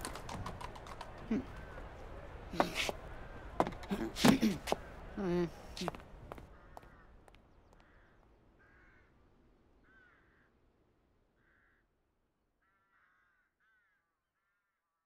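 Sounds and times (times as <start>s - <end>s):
faint bird calls: 4.6s - 10.6s, 11.4s - 12.0s, 12.6s - 15.0s.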